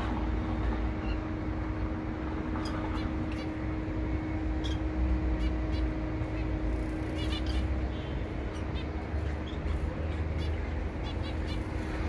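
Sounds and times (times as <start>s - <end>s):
faint hum: 0.0s - 12.0s
finches chirping: 4.5s - 12.0s.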